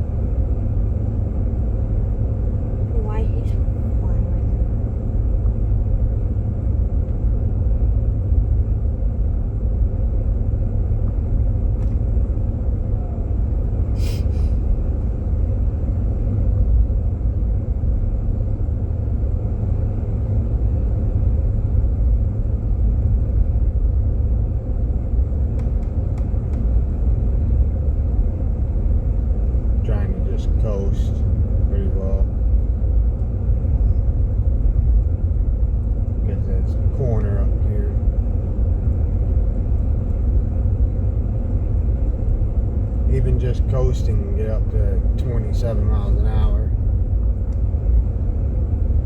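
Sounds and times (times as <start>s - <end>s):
road and engine rumble in car: 0.0s - 49.0s.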